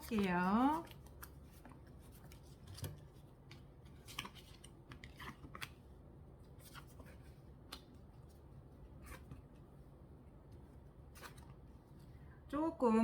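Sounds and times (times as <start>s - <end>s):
cards rustling: 0.0s - 5.9s.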